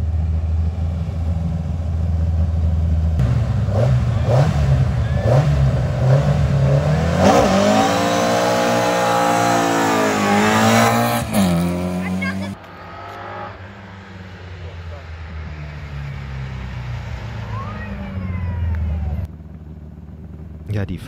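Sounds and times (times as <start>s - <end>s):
rally car engine revving: 3.2s - 18.0s.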